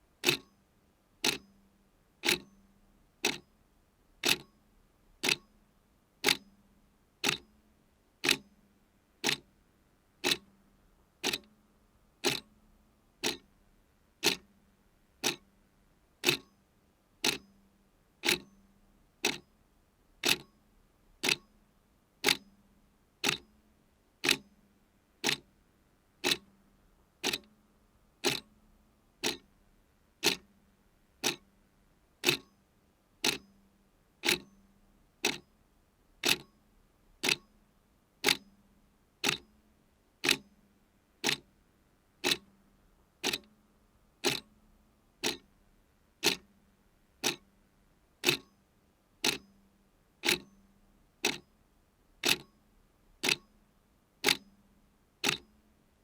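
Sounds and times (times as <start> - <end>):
clock ticking: 0.2 - 0.5, 1.2 - 1.4, 4.2 - 4.5, 5.2 - 5.4, 7.2 - 7.4, 8.2 - 8.4, 9.2 - 9.4, 10.2 - 10.4, 11.2 - 11.5, 12.2 - 12.5, 13.2 - 13.4, 14.2 - 14.4, 15.2 - 15.4, 16.2 - 16.5, 17.2 - 17.4, 18.2 - 18.5, 20.2 - 20.5, 21.2 - 21.4, 24.2 - 24.4, 25.2 - 25.4, 26.2 - 26.4, 27.2 - 27.5, 28.2 - 28.5, 29.2 - 29.5, 30.2 - 30.5, 31.2 - 31.4, 32.2 - 32.5, 33.2 - 33.4, 34.2 - 34.5, 35.2 - 35.4, 36.2 - 36.5, 37.2 - 37.5, 38.2 - 38.4, 39.2 - 39.4, 40.2 - 40.4, 41.2 - 41.4, 42.2 - 42.5, 43.2 - 43.5, 44.2 - 44.5, 45.2 - 45.5, 46.2 - 46.5, 47.2 - 47.4, 48.2 - 48.5, 49.2 - 49.5, 50.2 - 50.5, 51.2 - 51.4, 52.2 - 52.5, 53.2 - 53.5, 54.2 - 54.4, 55.2 - 55.4.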